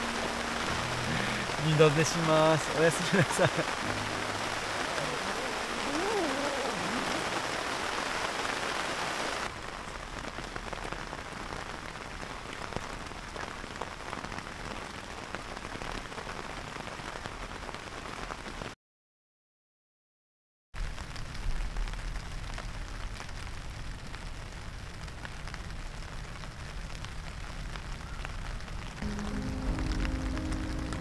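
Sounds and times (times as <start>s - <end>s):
raindrops ticking: 0.0s - 17.4s
heavy rain on a tent: 0.0s - 18.8s, 20.8s - 31.0s.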